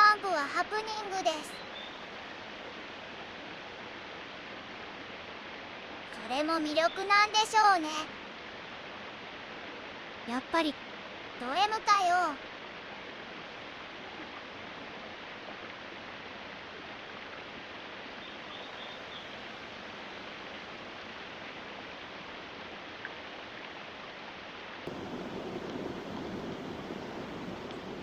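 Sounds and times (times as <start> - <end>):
steady rushing noise: 24.9 - 28.0.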